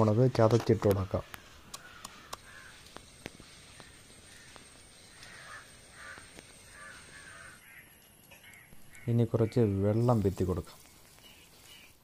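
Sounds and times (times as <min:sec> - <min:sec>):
faint clicks: 0:00.6 - 0:07.4
harsh bird calls: 0:01.0 - 0:12.0.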